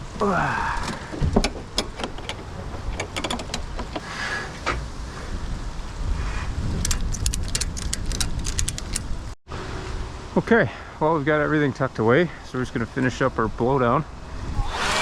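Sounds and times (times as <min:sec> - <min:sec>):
wind buffeting microphone: 0:01.0 - 0:09.4, 0:14.2 - 0:15.0
tools and gear clinking: 0:06.8 - 0:09.1.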